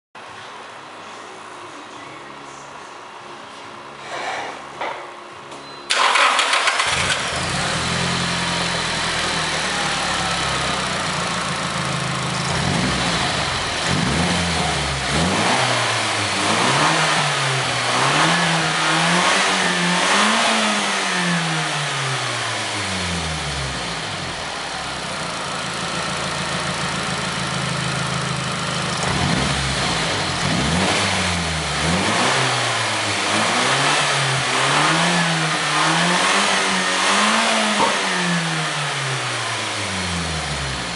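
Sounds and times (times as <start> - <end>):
car engine idling: 5.9 - 32.0
car engine revving: 5.9 - 40.9.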